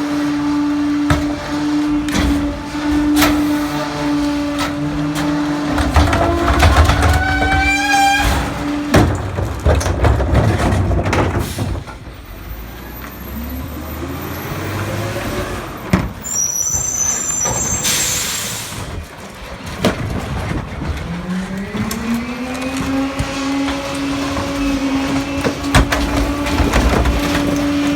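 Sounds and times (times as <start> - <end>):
rough grinding noise: 0.0 - 11.6, 19.0 - 27.9
diesel engine revving: 0.0 - 27.9
metal clanks: 1.0 - 12.1.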